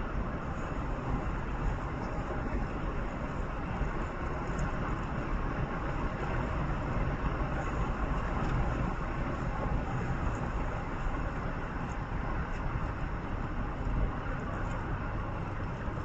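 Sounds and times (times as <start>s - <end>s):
vehicle road and engine rumble: 0.0s - 16.0s.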